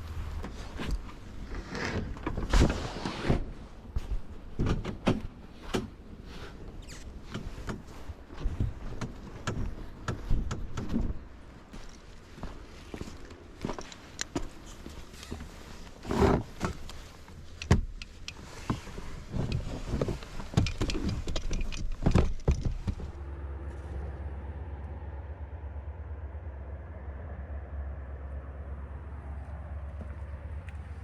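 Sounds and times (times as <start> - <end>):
muffled vehicle engine rumble: 0.0 - 31.0
handling knocks and clatter: 7.2 - 23.2.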